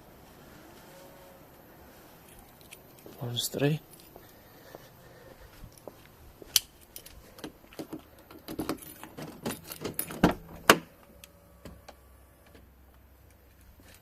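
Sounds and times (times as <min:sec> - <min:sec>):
keys jangling: 0:02.2 - 0:03.2, 0:06.5 - 0:10.4.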